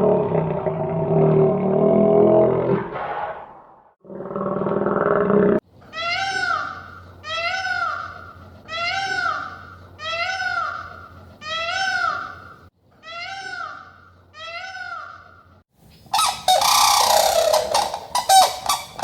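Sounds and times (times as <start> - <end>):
animal calling: 6.0 - 15.5, 16.1 - 19.0
low-pitched animal call: 16.2 - 19.0.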